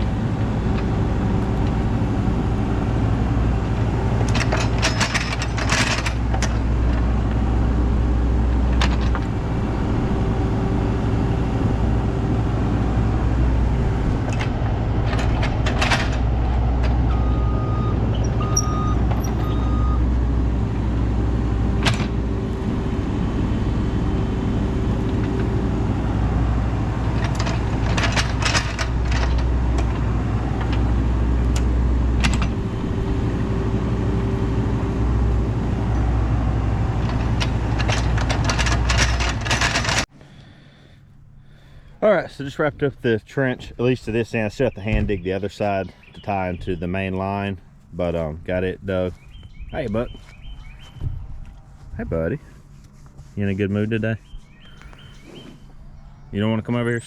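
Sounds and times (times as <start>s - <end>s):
excavator diesel engine running: 0.0s - 45.0s
bucket clanking and scraping: 27.0s - 31.0s, 37.0s - 40.1s.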